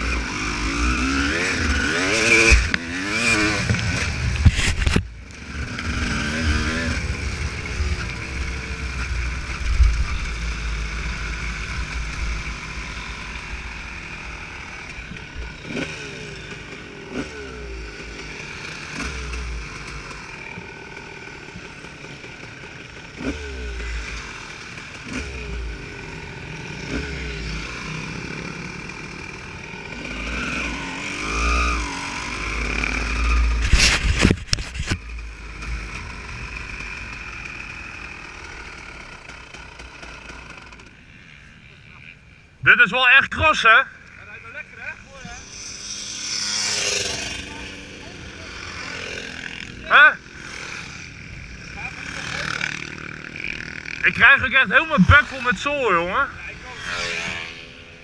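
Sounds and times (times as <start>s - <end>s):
motorcycle engine revving: 0.0s - 42.5s, 43.8s - 58.0s.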